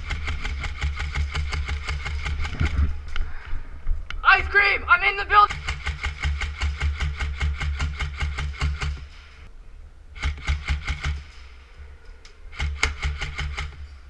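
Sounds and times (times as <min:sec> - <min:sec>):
airsoft rifle firing bursts: 0:00.0 - 0:02.9, 0:05.0 - 0:09.2, 0:10.2 - 0:11.5, 0:12.5 - 0:13.9.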